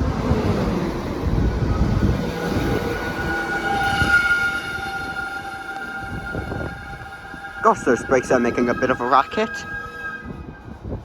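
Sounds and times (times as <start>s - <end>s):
train wheels rumbling on rail: 0.0s - 11.0s
brake squeal: 2.4s - 11.0s.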